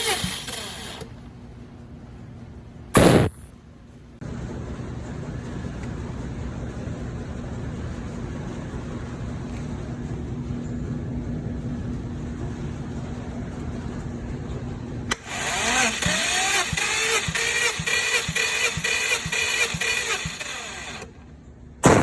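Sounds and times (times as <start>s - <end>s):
engine cranking on starter motor: 0.0s - 1.2s, 15.1s - 21.2s
steady hum: 2.9s - 3.5s.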